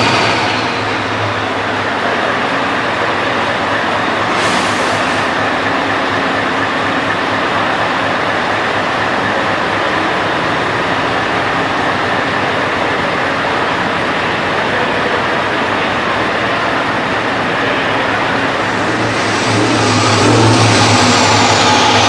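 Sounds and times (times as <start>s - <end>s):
heavy trucks driving past: 3.9s - 6.6s, 17.4s - 22.0s.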